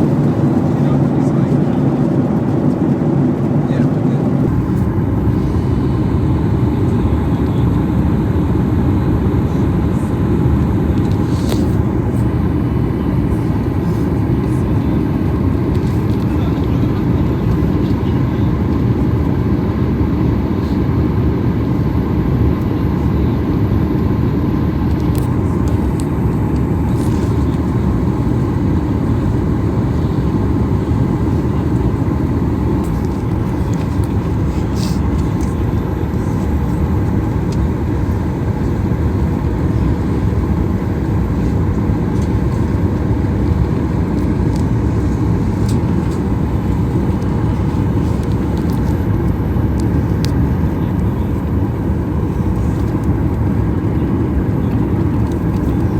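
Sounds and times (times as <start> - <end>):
airliner cabin rumble: 0.0 - 55.9.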